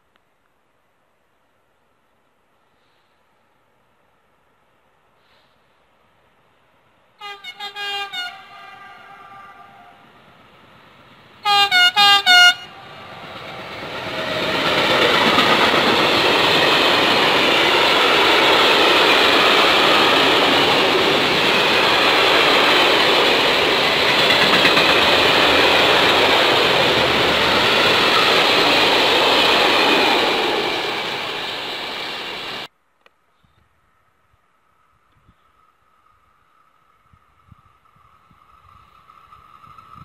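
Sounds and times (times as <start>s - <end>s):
locomotive horn blasts: 7.2s - 10.0s, 11.4s - 12.9s
train wheels on rails: 10.0s - 32.7s, 35.5s - 40.0s.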